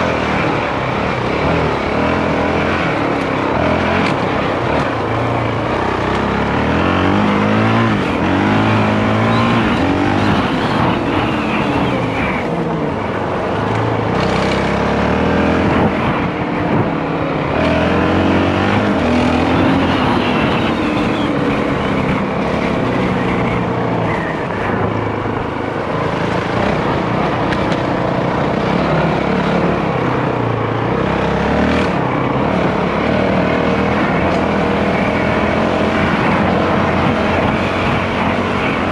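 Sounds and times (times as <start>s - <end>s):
dirt bike engine revving: 0.0s - 16.8s, 17.4s - 24.8s
wind: 0.0s - 38.9s.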